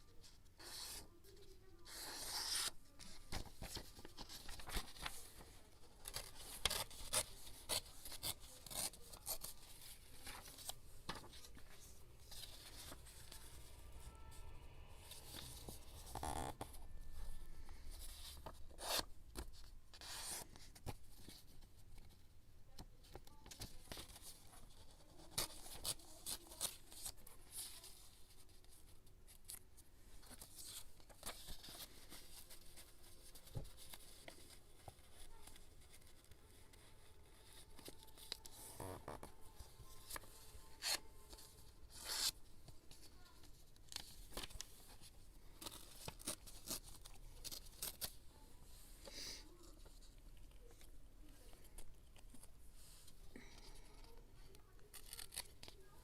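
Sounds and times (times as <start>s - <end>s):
paper rustling and tearing: 54.8s - 56.0s.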